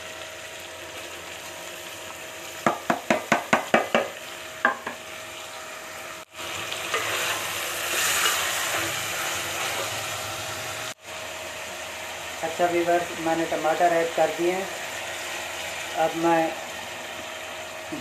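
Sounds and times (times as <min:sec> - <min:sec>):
food sizzling in pot: 0:00.0 - 0:18.0
spoon knocking on pot: 0:02.6 - 0:05.0.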